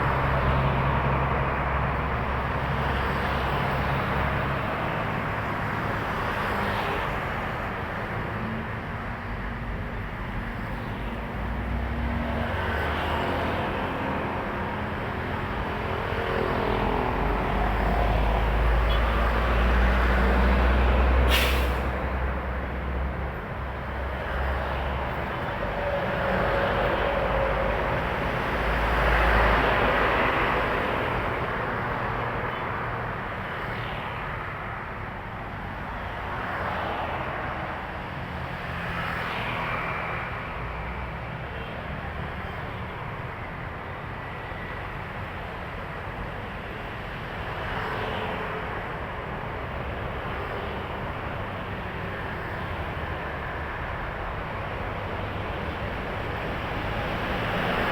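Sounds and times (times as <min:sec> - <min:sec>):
diesel trucks passing: 0:00.0 - 0:57.9
air-brake hiss: 0:21.3 - 0:22.0.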